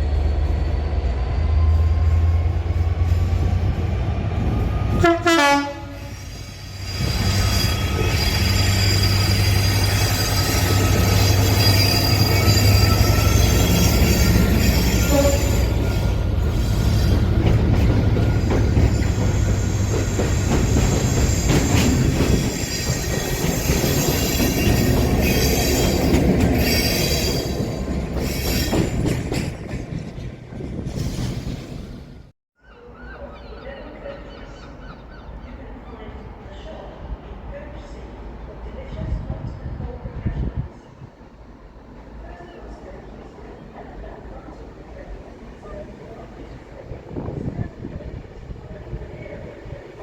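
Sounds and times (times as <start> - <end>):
train passing: 0.0 - 32.3, 33.0 - 50.0
train horn: 4.8 - 16.2
wheels squealing: 6.0 - 29.1.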